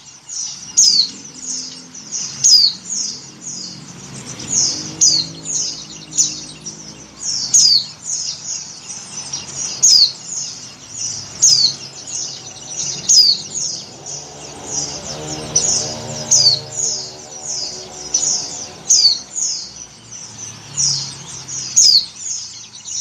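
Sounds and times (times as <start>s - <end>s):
bird high chirps: 0.0s - 23.0s.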